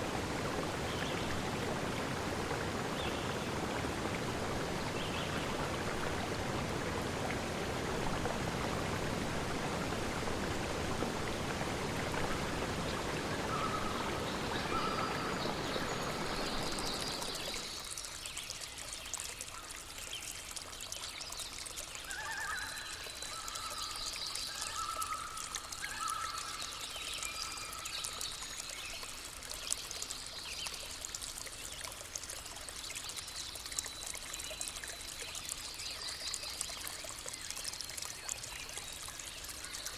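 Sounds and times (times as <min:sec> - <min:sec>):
stream water rushing: 0:00.0 - 0:18.4
water trickling: 0:00.0 - 0:39.9.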